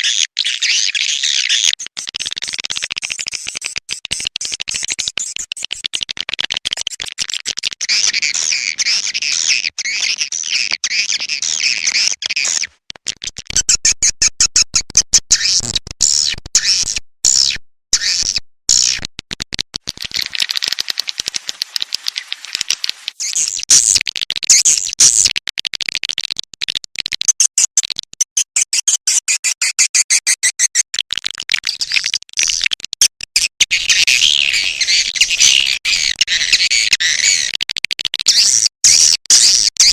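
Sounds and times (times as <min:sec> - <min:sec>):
dry clicks: 0:19.8 - 0:28.2
swiftlet chattering twitters: 0:19.9 - 0:25.3.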